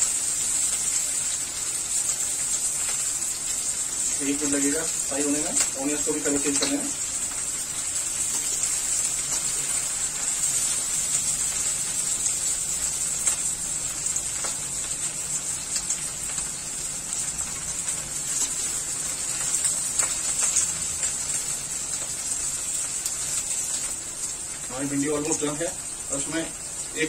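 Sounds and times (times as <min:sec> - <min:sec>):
vegetables sizzling in hot oil: 0:00.0 - 0:27.0.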